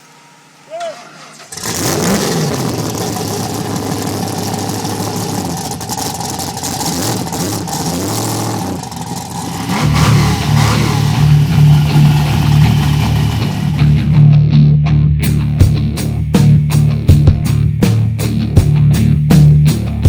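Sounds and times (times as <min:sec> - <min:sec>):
dirt bike engine revving: 0:01.3 - 0:14.2
steady low sound: 0:02.8 - 0:20.0.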